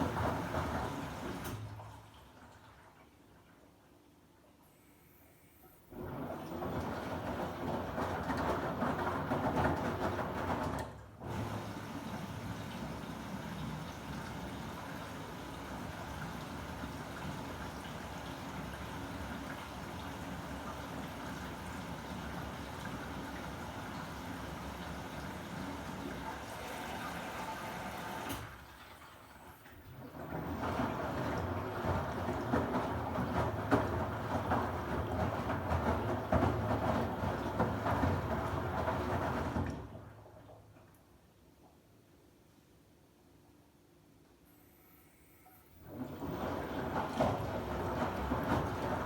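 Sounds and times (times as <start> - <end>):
washing machine rinsing: 0.0 - 4.7, 5.8 - 41.8, 45.8 - 49.0
water moving in drum: 29.9 - 40.9, 45.8 - 49.0.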